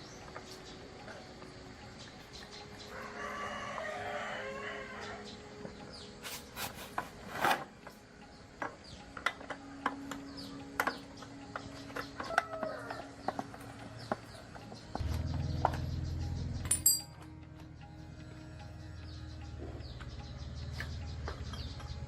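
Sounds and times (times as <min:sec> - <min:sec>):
rooster crowing: 0:02.9 - 0:05.3, 0:12.2 - 0:14.1.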